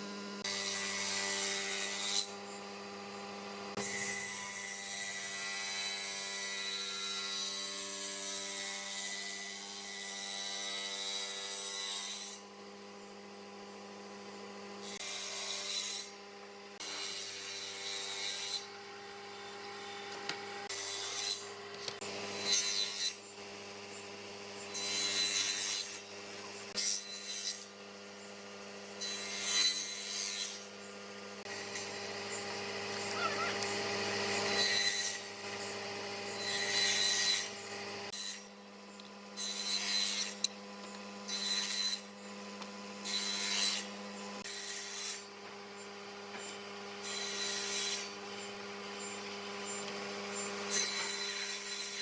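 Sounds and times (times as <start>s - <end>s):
power tool sanding wood: 31.0s - 38.2s.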